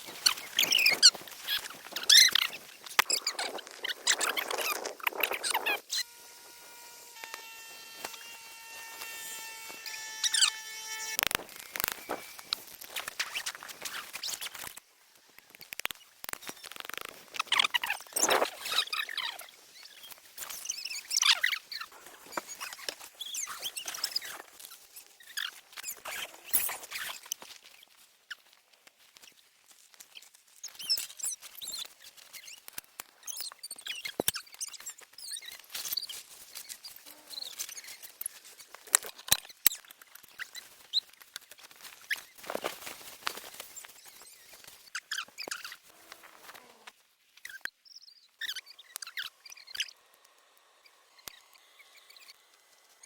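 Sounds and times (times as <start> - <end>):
camping gear rustling: 0.0 - 6.0, 11.2 - 47.6.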